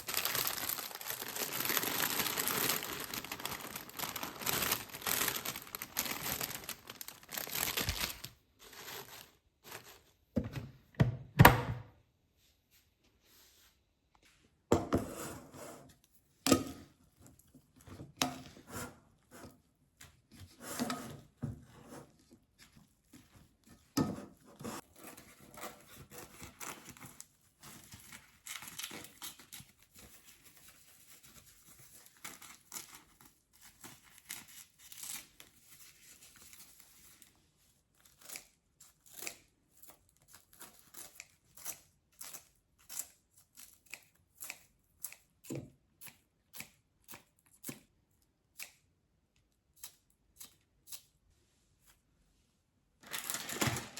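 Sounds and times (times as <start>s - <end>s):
rustling of food packaging: 0.0s - 10.4s, 22.0s - 39.0s, 52.9s - 53.9s.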